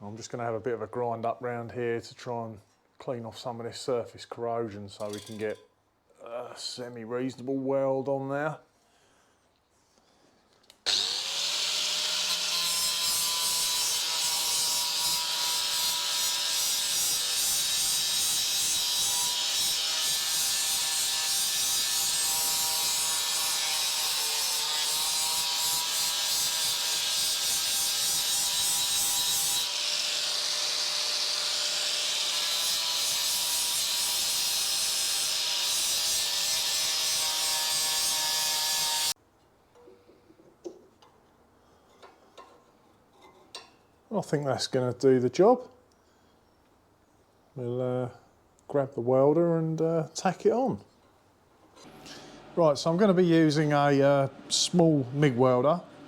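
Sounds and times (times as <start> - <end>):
electric grinder grinding metal: 10.9 - 39.2.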